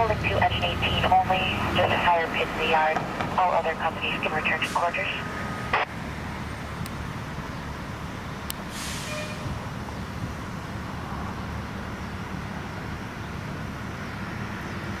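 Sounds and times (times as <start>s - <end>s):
road traffic rumble: 0.0s - 15.0s
short hiss: 8.7s - 9.4s.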